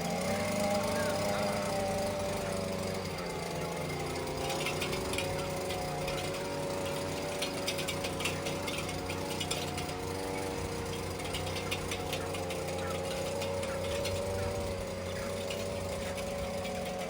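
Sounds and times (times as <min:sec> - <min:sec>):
mechanical hum with held tones: 0:00.0 - 0:17.0
rattle of rapid clicks: 0:00.0 - 0:17.0.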